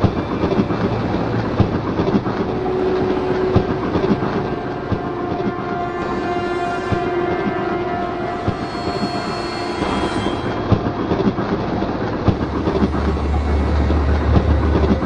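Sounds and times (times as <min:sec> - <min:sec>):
deep low rumble: 0:10.4 - 0:15.0.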